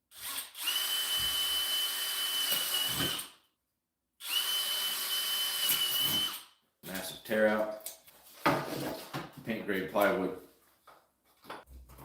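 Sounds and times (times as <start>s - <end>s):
power drill boring through wood: 0.1s - 3.4s, 4.2s - 6.5s.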